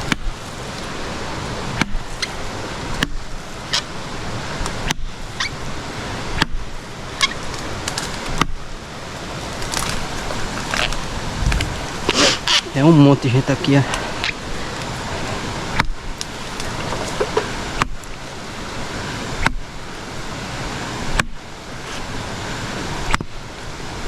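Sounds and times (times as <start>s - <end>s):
twigs snapping: 0.0s - 2.4s, 7.2s - 18.3s
creek rushing: 0.0s - 24.0s.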